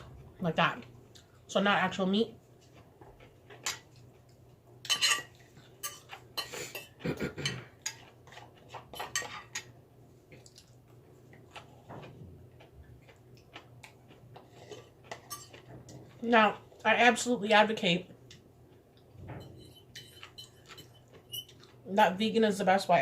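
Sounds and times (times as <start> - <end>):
cutlery clinking on dishes: 4.8 - 9.7, 19.4 - 21.6.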